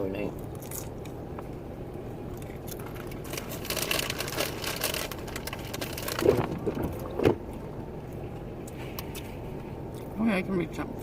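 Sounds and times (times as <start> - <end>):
potato chip bag crinkling: 2.7 - 7.0.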